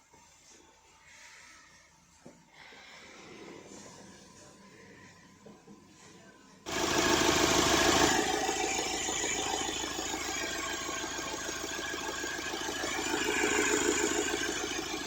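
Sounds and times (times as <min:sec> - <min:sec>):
diesel engine starting and idling: 0:06.7 - 0:15.0.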